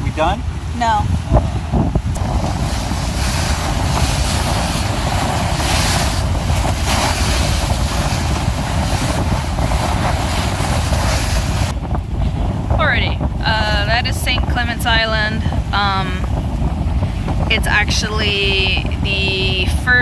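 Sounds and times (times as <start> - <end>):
wind buffeting microphone: 0.0 - 20.0
boat motor running: 1.7 - 12.0
rushing water: 2.2 - 11.8.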